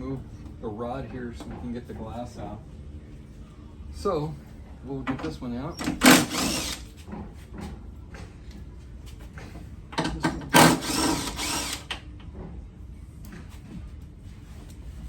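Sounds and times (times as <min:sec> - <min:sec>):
power drill whining: 0:05.8 - 0:06.9, 0:10.5 - 0:12.0.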